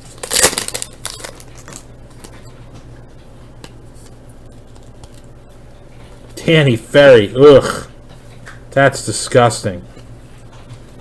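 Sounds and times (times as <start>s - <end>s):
wrapper crinkling: 0.0s - 2.4s
cards rustling and clicking: 3.6s - 5.3s.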